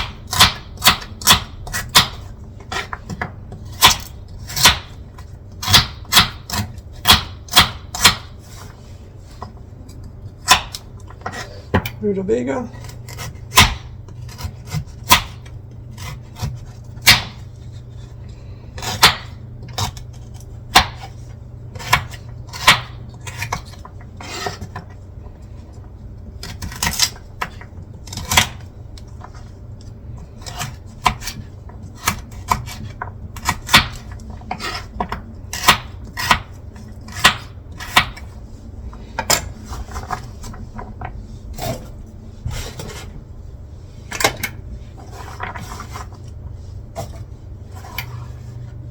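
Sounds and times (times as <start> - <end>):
knife chopping on cutting board: 0.0 - 8.6, 10.4 - 12.0, 12.8 - 17.8, 18.8 - 24.9, 26.4 - 28.6, 30.4 - 38.3
low steady hum: 0.0 - 48.9.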